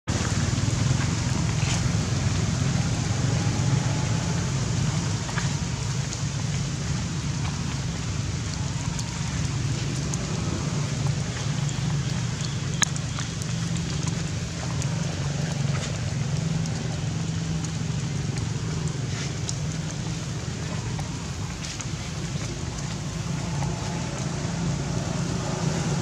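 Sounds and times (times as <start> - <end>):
low rumble: 0.1 - 26.0
rain on wet ground and puddles: 0.1 - 26.0
drip clicks: 0.2 - 26.0.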